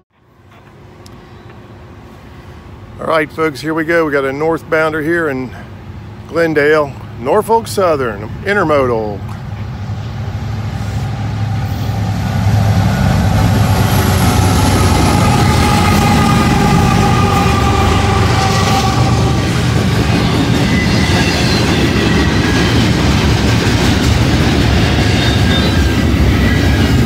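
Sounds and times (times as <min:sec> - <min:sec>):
diesel locomotives: 0:00.0 - 0:27.0
wheels clattering on rail: 0:11.7 - 0:27.0.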